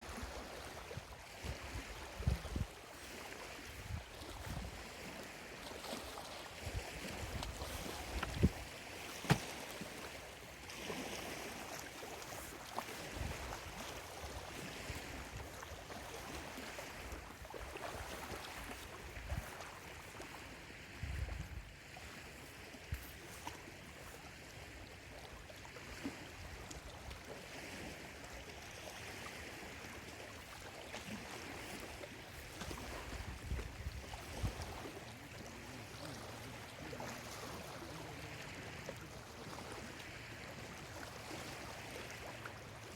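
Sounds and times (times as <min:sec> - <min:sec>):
small waves lapping: 0:00.0 - 0:42.9
soft low water thumps: 0:05.9 - 0:10.8.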